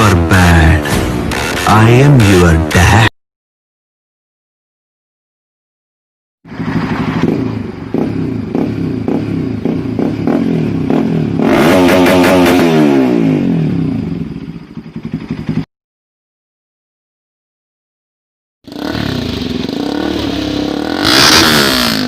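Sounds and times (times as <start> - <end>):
motorcycle engine idling and revving: 0.0 - 2.8, 6.4 - 15.7, 18.6 - 22.0.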